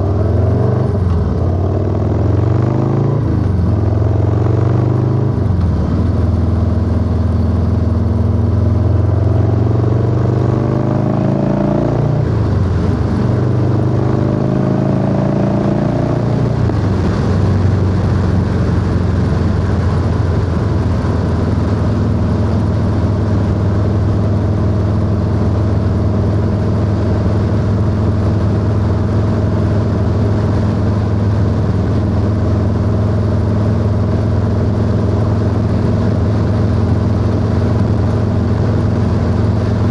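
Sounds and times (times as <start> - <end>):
motorcycle engine accelerating: 0.0 - 39.9
wind noise: 12.0 - 39.9.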